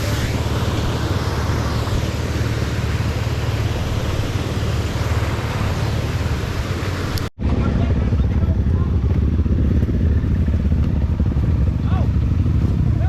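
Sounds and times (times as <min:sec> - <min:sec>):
noisy hiss: 0:00.0 - 0:07.3
motorcycle engine rumbling: 0:00.0 - 0:13.0.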